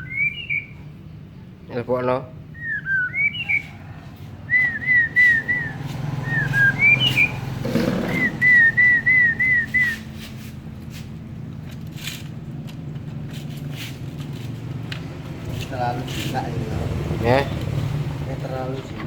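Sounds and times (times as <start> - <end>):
higher rising whistled notes: 4.4 - 10.1
short slurred whistled notes: 8.1 - 10.1.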